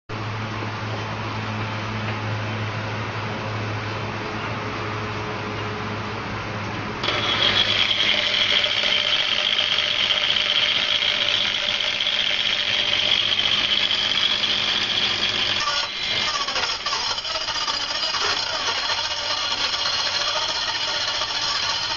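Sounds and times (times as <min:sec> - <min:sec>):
angle grinder high whine: 0:07.0 - 0:21.9.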